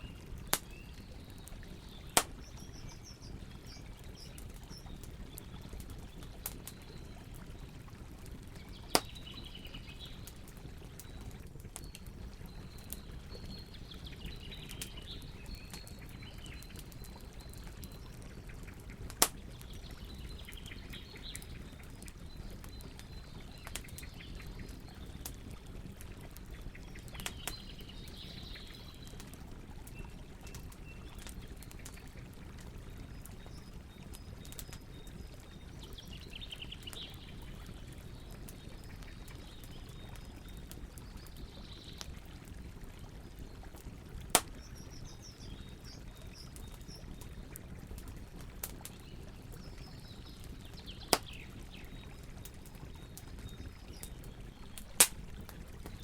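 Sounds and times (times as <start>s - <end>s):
campfire crackling: 0.0s - 56.0s
birds chirping: 8.3s - 25.3s.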